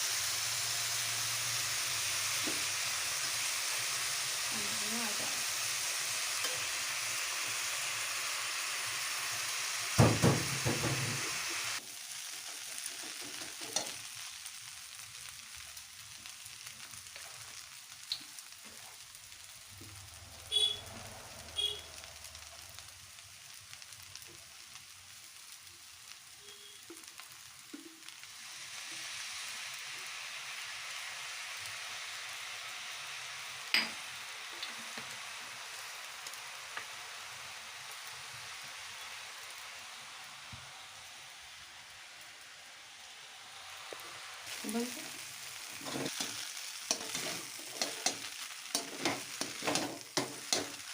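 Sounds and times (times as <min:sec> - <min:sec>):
food sizzling in a pan: 0:00.0 - 0:50.9
utensil knocking on pan: 0:10.0 - 0:11.3.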